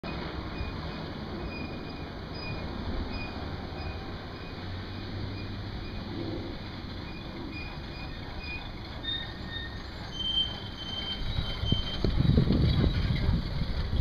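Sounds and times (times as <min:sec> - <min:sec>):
vehicle low rumble: 0:00.0 - 0:14.0.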